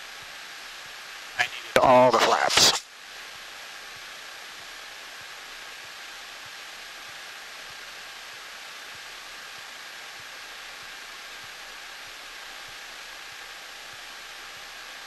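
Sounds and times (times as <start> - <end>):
aircraft cockpit engine hiss: 1.3 - 2.9.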